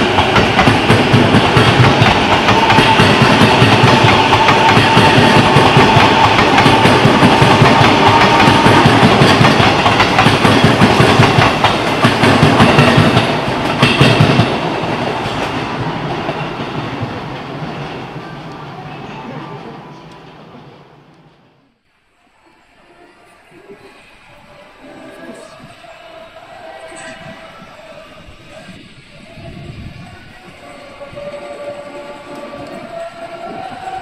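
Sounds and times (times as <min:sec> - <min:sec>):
train wheels clattering over rails: 0:00.0 - 0:18.2
train whine: 0:00.0 - 0:34.0.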